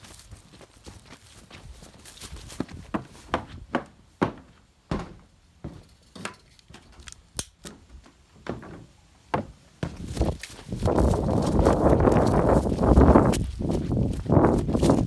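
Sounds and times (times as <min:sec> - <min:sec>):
sharp knocks and thumps: 0:03.3 - 0:07.0.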